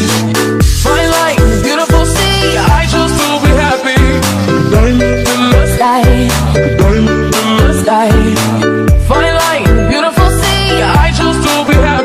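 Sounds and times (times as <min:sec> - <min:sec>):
deep kick drum: 0:03.5 - 0:09.1.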